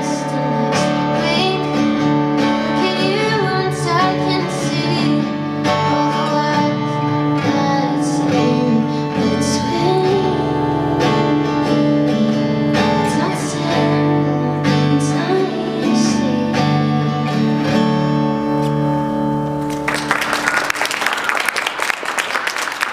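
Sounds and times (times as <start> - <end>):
woman singing: 0.0 - 18.0
guitar: 0.0 - 22.9
audience applause: 19.6 - 22.9.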